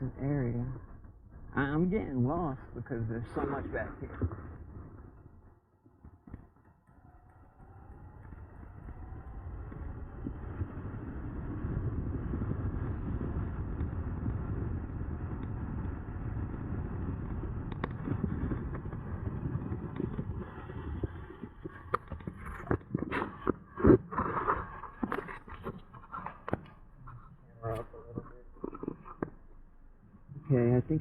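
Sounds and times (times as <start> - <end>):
wind rush from moving bike: 2.9 - 26.6.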